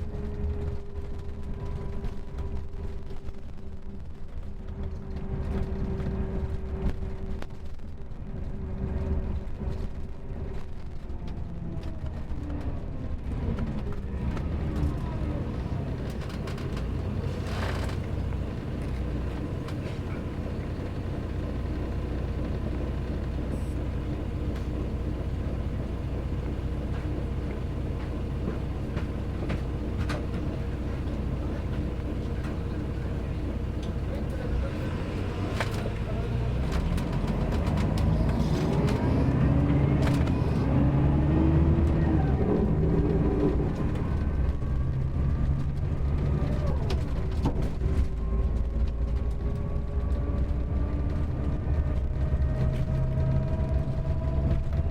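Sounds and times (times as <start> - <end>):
bus diesel engine droning: 0.0 - 54.9.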